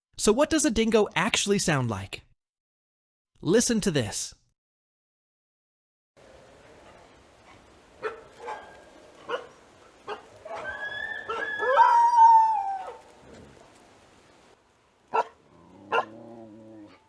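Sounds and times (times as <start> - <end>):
dingo barking: 6.2 - 17.0
dingo howling: 6.2 - 17.0.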